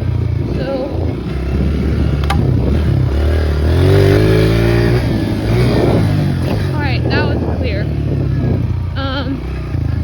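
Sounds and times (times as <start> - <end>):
dirt bike engine revving: 0.0 - 10.0
sharp click: 2.2 - 2.5.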